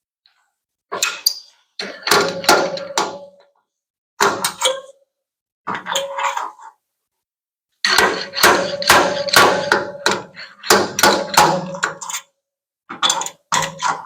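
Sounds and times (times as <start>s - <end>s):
hammer striking sheet metal: 1.9s - 3.4s, 7.9s - 12.0s.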